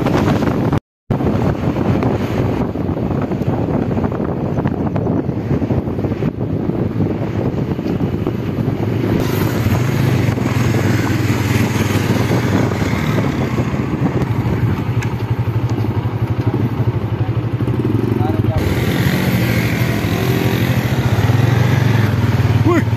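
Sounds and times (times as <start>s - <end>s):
motorcycle engine running: 8.1s - 22.9s.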